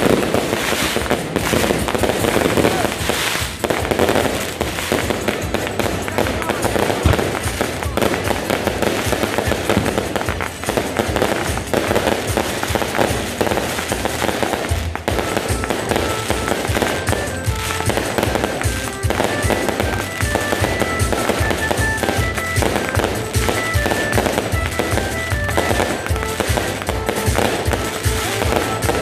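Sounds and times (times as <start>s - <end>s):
fireworks and firecrackers banging: 0.0s - 29.0s
music with sustained notes: 0.0s - 29.0s.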